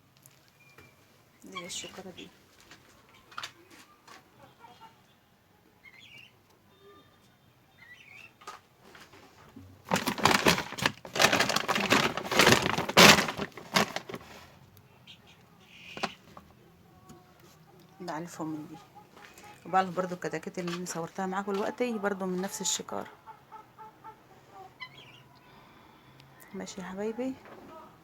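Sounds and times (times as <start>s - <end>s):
loud rough rustling: 9.9s - 14.6s
faint bird calls: 23.1s - 25.7s.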